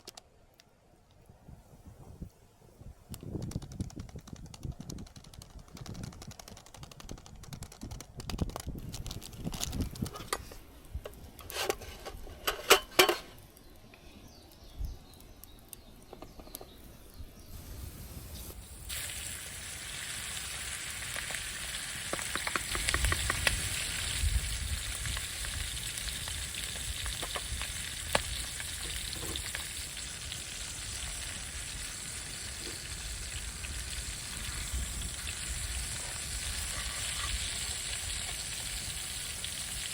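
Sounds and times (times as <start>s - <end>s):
food sizzling in a pan: 17.8s - 39.9s.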